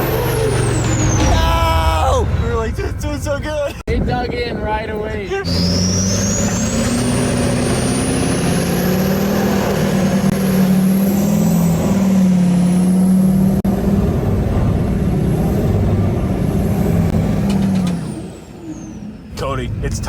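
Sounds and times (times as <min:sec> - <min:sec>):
high turbine whine: 0:00.0 - 0:11.2
turbine engine drone: 0:00.0 - 0:20.0.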